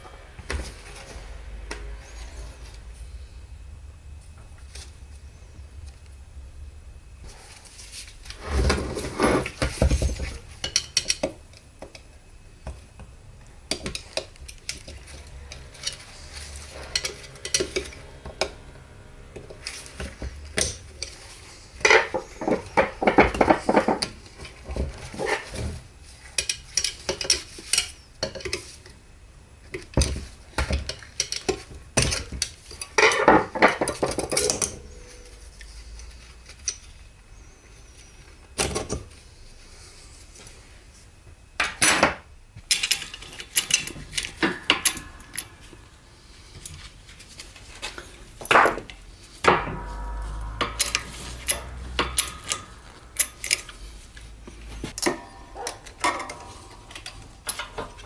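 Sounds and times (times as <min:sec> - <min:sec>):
low hum: 0:00.0 - 0:08.4, 0:12.9 - 0:25.0, 0:44.2 - 0:48.1, 0:49.0 - 0:58.0
metal parts and tools clinking: 0:13.7 - 0:28.8, 0:42.7 - 0:48.8, 0:49.4 - 0:58.0.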